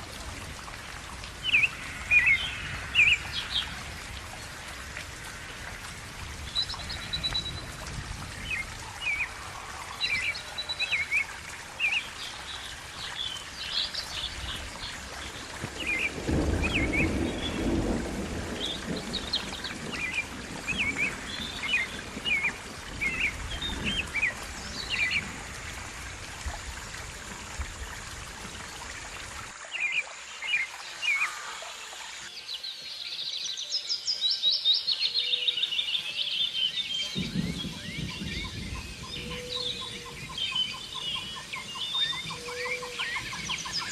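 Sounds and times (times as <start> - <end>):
songbirds chirping and singing: 29.8 - 43.9.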